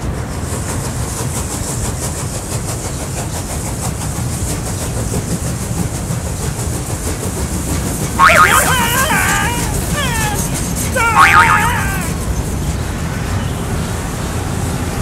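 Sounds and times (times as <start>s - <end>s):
train rumbling on rails: 0.0s - 8.2s, 11.8s - 15.0s.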